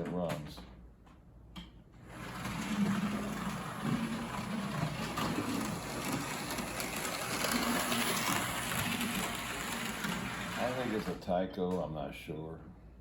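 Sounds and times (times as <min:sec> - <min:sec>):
model train motor humming: 0:02.1 - 0:11.2
wheels rattling on rails: 0:02.1 - 0:11.2.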